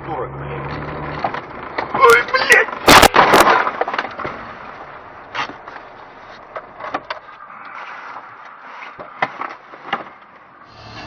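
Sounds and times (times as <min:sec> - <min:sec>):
car interior noise: 0:10.7 - 0:11.0.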